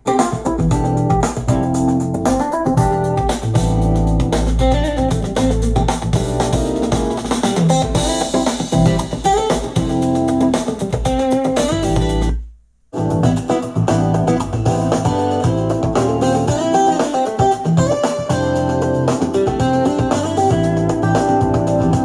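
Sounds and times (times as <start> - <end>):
keyboard: 0.0 - 12.4, 13.0 - 22.0
plucked guitar: 0.0 - 12.4, 13.0 - 22.0
deep bass: 0.6 - 9.2, 11.7 - 12.4, 13.0 - 16.6, 18.3 - 22.0.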